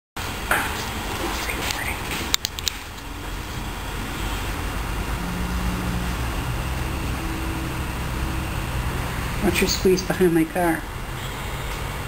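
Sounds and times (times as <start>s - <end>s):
vehicle engine running: 3.0s - 12.0s.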